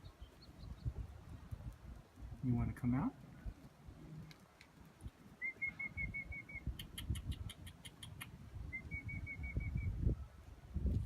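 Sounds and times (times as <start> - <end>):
sharp bird chips: 6.2 - 8.4.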